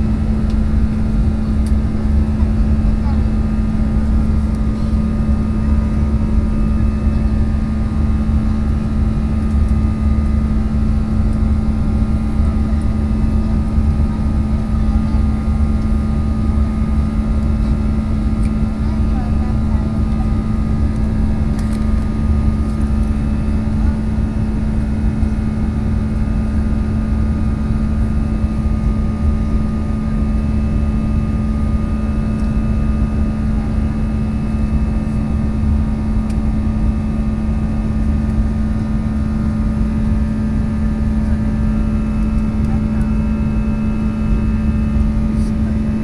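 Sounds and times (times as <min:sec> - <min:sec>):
airliner cabin engine drone: 0:00.0 - 0:46.0.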